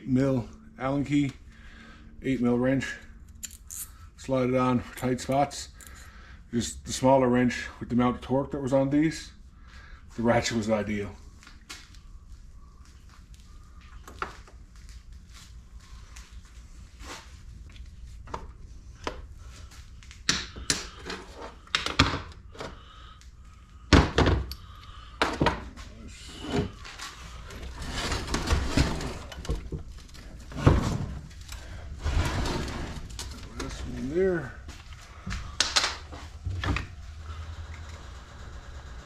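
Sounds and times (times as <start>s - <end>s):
rough scraping: 31.8s - 34.4s.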